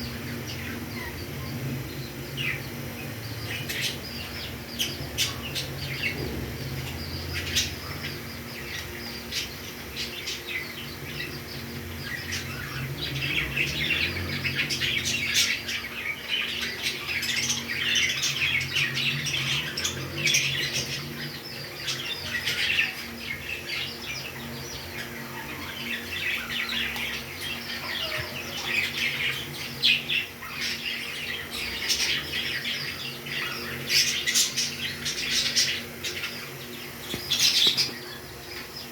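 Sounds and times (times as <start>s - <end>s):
parrots chirping and squawking: 0.0s - 38.9s.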